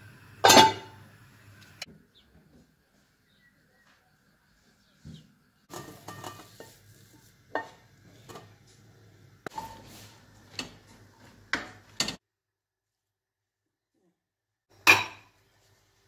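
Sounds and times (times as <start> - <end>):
wooden spatula scraping a frying pan: 5.7 - 8.6, 9.5 - 11.4.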